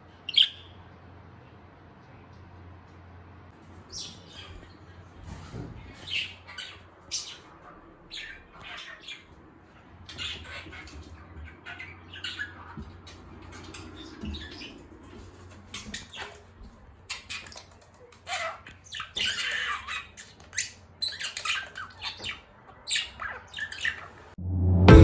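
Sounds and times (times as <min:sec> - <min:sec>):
pet bird squawking and chirping: 0:00.3 - 0:00.7, 0:06.0 - 0:09.3, 0:10.0 - 0:13.1, 0:17.1 - 0:24.2.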